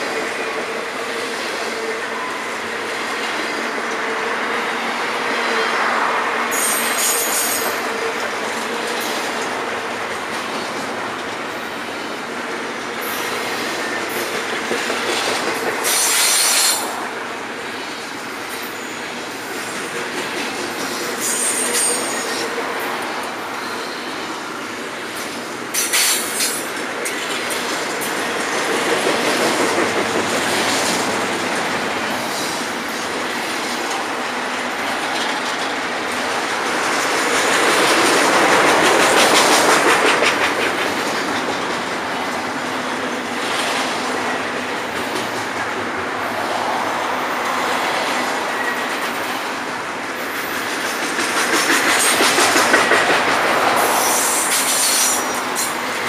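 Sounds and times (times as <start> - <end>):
train wheel squeal: 0.0 - 9.5, 13.0 - 16.9, 17.8 - 33.0, 47.8 - 49.6, 50.2 - 56.0
freight train wheels rumbling: 0.0 - 56.0
clickety-clack over rail joints: 5.0 - 56.0.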